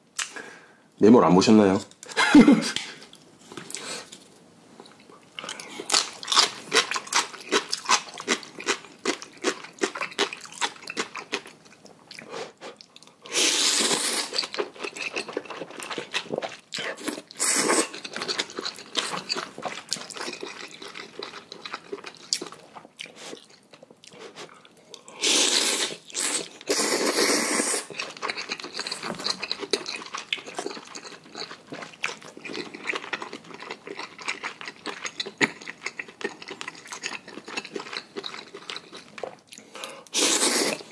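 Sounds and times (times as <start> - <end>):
slurping noodles: 13.3 - 14.4, 25.2 - 28.0, 40.1 - 40.9
wet chewing with mouth clicks: 14.1 - 25.1, 25.8 - 40.9.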